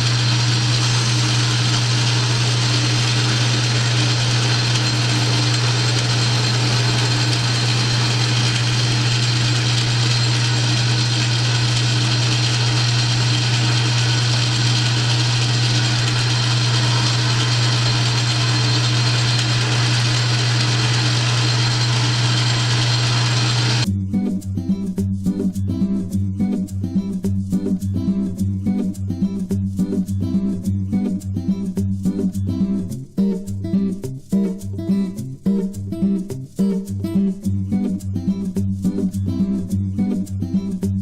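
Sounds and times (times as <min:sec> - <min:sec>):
lathe cutting hiss: 0:00.0 - 0:23.9
metal lathe motor hum: 0:00.0 - 0:23.9.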